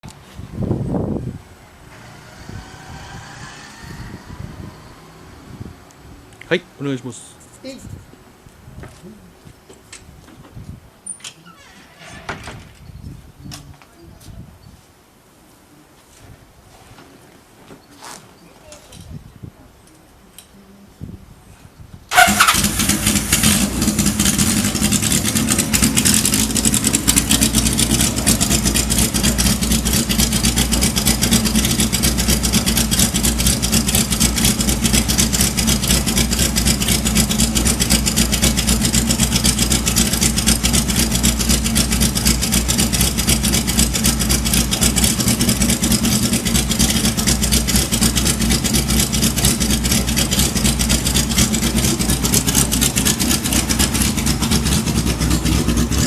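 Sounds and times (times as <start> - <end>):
motorcycle engine idling: 22.1 - 56.0.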